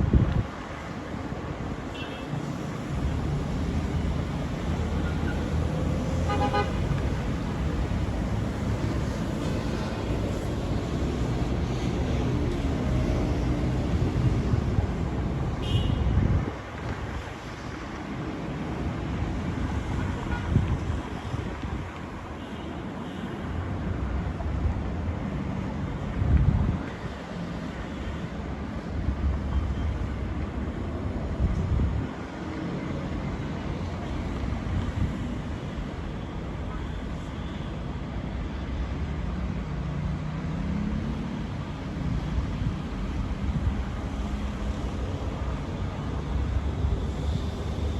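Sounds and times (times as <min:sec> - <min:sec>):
street traffic: 0:00.0 - 0:47.9
wind gusting on microphone: 0:02.8 - 0:22.3.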